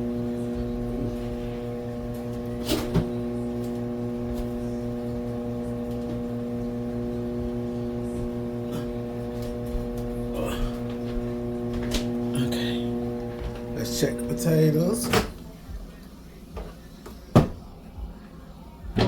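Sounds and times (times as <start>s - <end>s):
low throb: 0.0s - 14.4s
kitchen appliance electrical hum: 0.0s - 19.0s.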